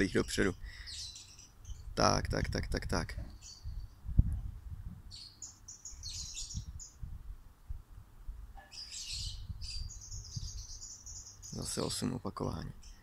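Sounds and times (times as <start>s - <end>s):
songbird chirping: 0.0s - 2.2s, 3.2s - 4.3s, 5.0s - 7.1s, 8.6s - 13.0s.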